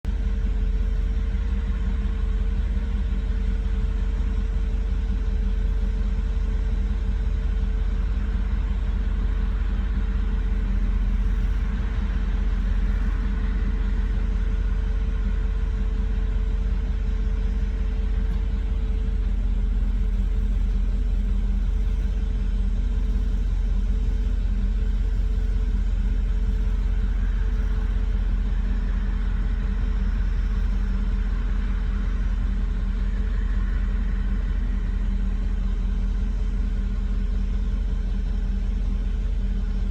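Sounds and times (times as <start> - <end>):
car engine rough idle: 0.0 - 39.9
thin steady whine: 0.0 - 39.9.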